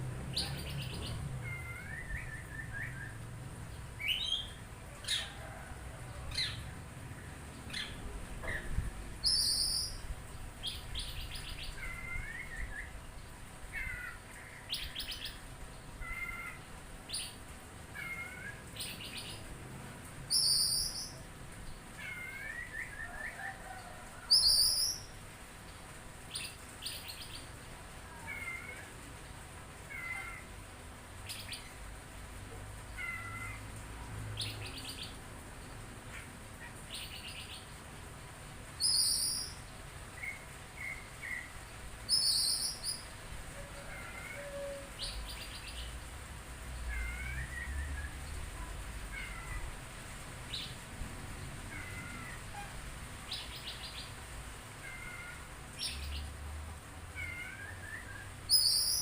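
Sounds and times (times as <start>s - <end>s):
bird singing chirps and trills: 0.3s - 5.3s, 9.2s - 10.0s, 20.3s - 21.2s, 38.8s - 39.6s, 42.1s - 43.1s, 57.2s - 59.0s.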